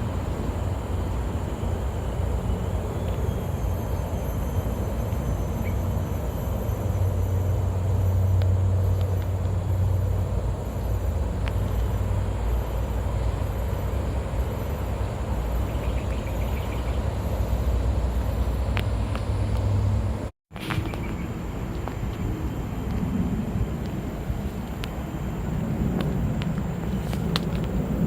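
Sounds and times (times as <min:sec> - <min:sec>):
steady low rumble: 0:00.0 - 0:28.0
faint high-pitched chirp: 0:02.5 - 0:09.2.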